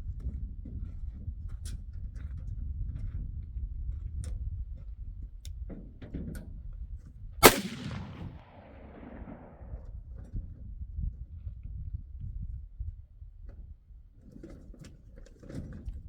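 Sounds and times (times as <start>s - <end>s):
gunshot with echo: 7.4s - 9.7s.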